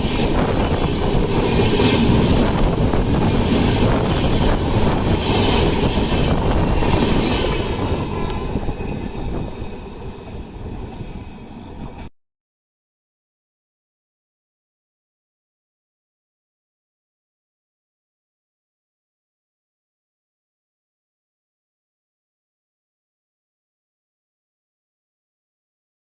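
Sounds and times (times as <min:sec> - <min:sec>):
train wheels rumbling on track: 0:00.0 - 0:12.1.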